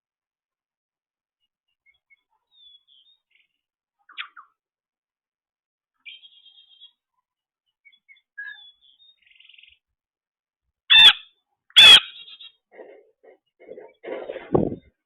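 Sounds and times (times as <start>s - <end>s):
faint bird chirps: 1.4s - 4.6s, 6.0s - 9.9s
loud harsh bird calls: 10.9s - 13.0s.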